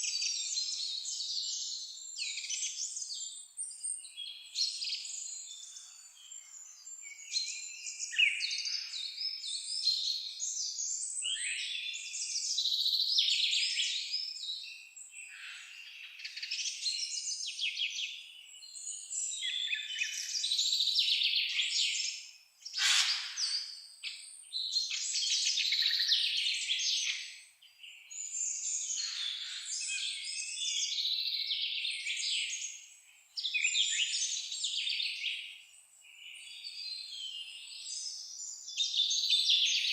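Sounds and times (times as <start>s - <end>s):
songbirds chirping and trilling: 0.0s - 39.9s
sharp bird call: 22.8s - 23.6s.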